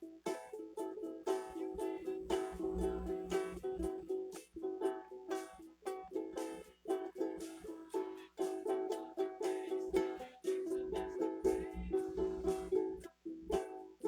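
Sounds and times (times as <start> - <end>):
strummed string instrument chords: 0.0 - 14.0.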